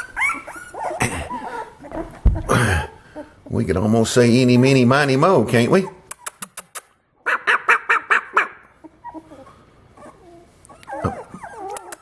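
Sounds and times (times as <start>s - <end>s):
puppies whimpering and squealing: 0.0s - 2.4s, 7.3s - 12.0s.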